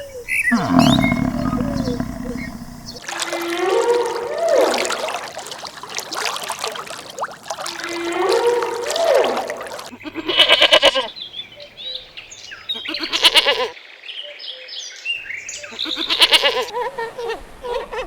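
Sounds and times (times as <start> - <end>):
goat bleating: 10.2 - 11.0, 15.8 - 16.7.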